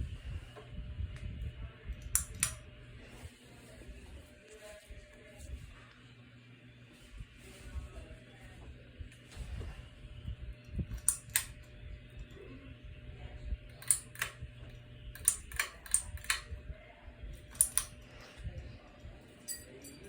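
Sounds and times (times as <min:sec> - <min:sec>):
ceiling fan humming: 0:00.0 - 0:20.0
sharp clicks: 0:02.0 - 0:02.6, 0:10.9 - 0:11.7, 0:13.7 - 0:16.5, 0:17.4 - 0:17.9.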